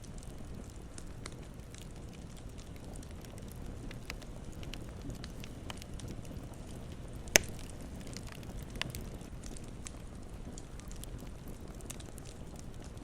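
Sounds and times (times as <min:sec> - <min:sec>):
campfire crackling: 0:00.0 - 0:13.0
sharp loud pop from fire: 0:07.4 - 0:07.7.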